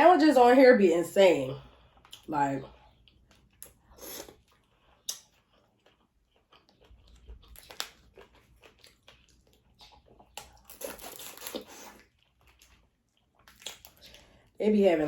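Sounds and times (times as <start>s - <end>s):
wet chewing of seafood: 1.6s - 14.6s.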